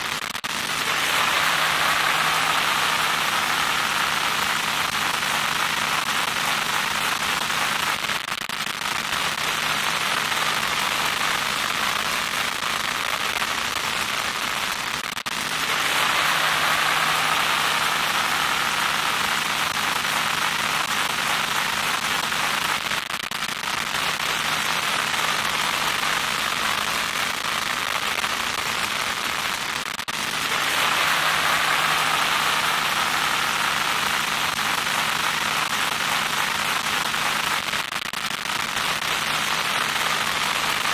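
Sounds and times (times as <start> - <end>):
loud static hiss: 0.0 - 40.9.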